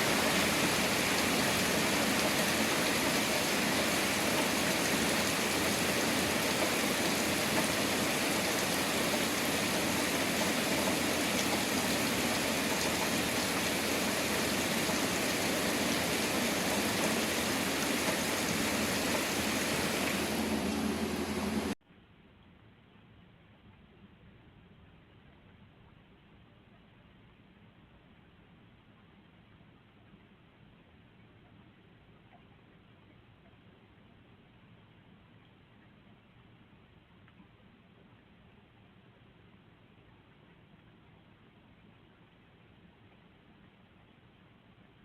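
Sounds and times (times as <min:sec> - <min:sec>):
heavy rain: 0:00.0 - 0:21.8.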